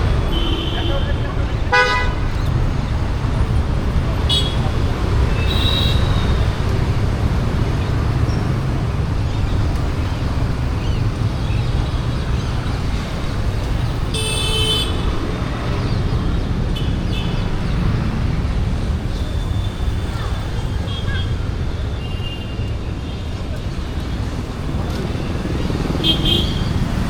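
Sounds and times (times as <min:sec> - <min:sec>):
street traffic: 0:00.0 - 0:27.0
vehicle horn honking: 0:01.7 - 0:02.2, 0:14.2 - 0:15.0.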